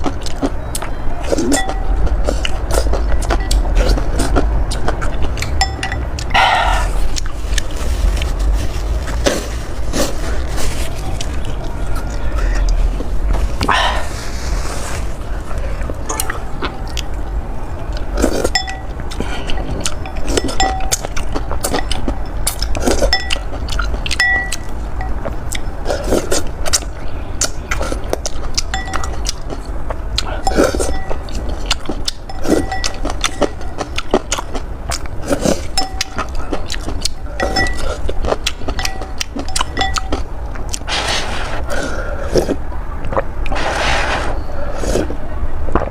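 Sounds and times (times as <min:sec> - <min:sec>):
wet chewing noises: 0:00.0 - 0:45.9
utensil clinking against bowl: 0:01.4 - 0:02.0, 0:05.5 - 0:06.2, 0:18.4 - 0:25.7, 0:28.6 - 0:29.5, 0:30.4 - 0:31.4, 0:32.1 - 0:34.2, 0:35.7 - 0:36.4, 0:37.1 - 0:40.3.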